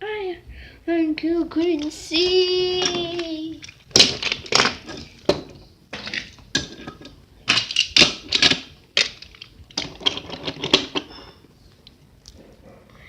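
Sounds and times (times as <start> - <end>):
plastic toys clattering: 1.7 - 11.5.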